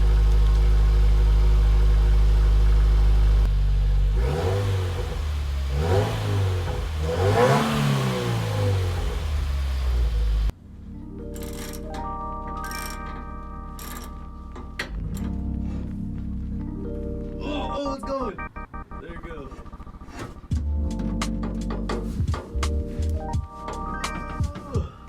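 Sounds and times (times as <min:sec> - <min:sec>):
car engine revving: 0:00.0 - 0:10.6
car engine idling: 0:00.0 - 0:10.9.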